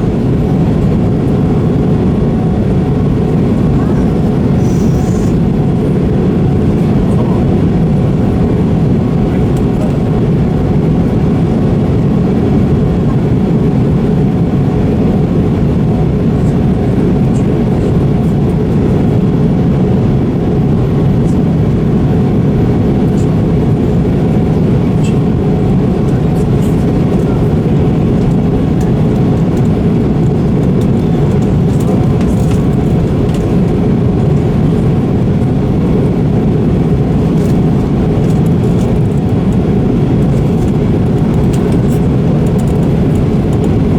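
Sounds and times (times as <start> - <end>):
jet engine and airflow rush in cabin: 0.0 - 43.9.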